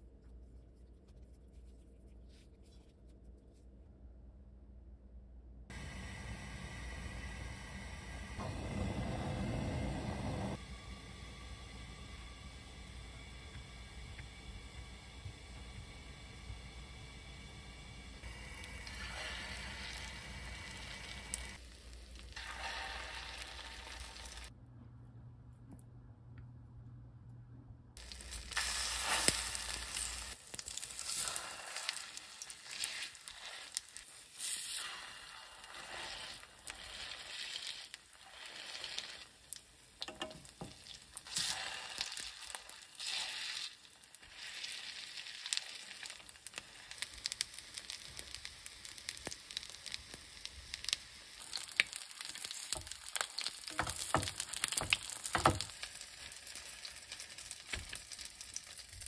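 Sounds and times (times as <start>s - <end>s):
patties sizzling in a frying pan: 10.6s - 24.5s, 28.0s - 59.0s
utensil clicking against pan: 40.0s - 40.5s.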